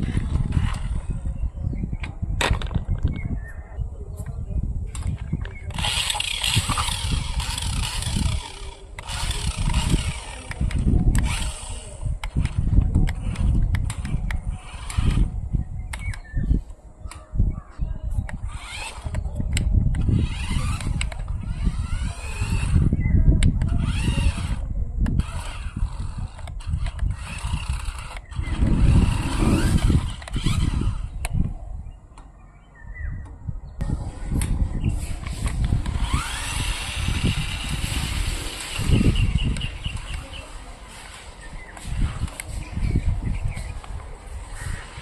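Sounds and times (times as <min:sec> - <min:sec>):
toy truck motors whining: 0:00.0 - 0:01.4, 0:04.9 - 0:16.3, 0:18.3 - 0:31.5, 0:33.8 - 0:45.0
rumble of wheels and gears: 0:00.0 - 0:45.0
sharp clicks: 0:15.9 - 0:16.3
heavy low rumble: 0:28.3 - 0:31.0.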